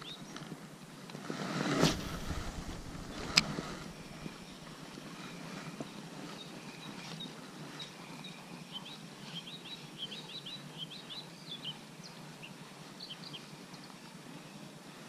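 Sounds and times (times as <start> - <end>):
steady background hiss: 0.6 - 6.2.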